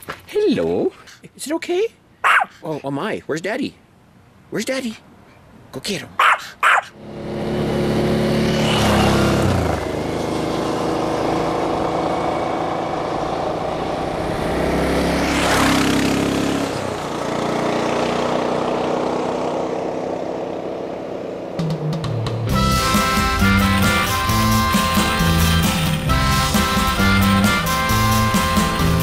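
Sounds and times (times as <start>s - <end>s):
wind and road rush: 3.8s - 27.2s
motorcycle engine revving: 6.9s - 29.0s.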